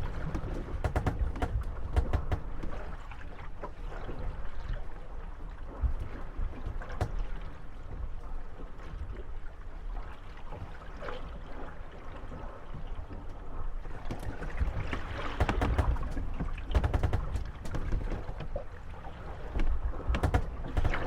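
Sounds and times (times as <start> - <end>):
waves lapping against hulls: 0.0 - 21.0
wooden boats knocking and creaking: 0.0 - 21.0.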